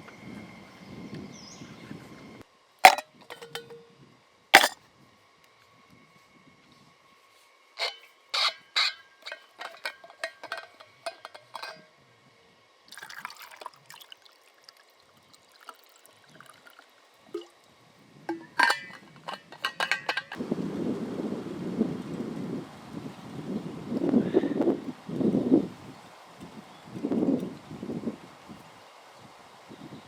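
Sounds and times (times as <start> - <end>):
liquid pouring: 12.9 - 17.5
liquid dripping into container: 12.9 - 17.6.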